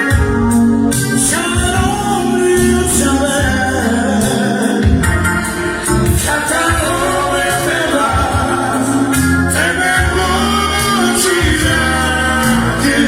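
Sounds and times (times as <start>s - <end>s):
bass line: 0.0s - 13.0s
live band music: 0.0s - 13.0s
person singing: 1.0s - 13.0s.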